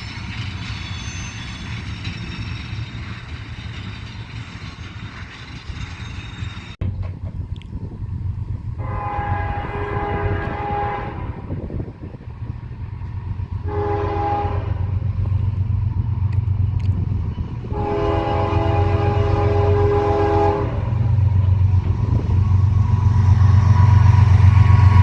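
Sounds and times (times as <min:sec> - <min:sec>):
locomotive rumble: 0:00.0 - 0:25.0
locomotive air horn blasts: 0:08.8 - 0:11.5, 0:13.6 - 0:14.9, 0:17.7 - 0:21.1.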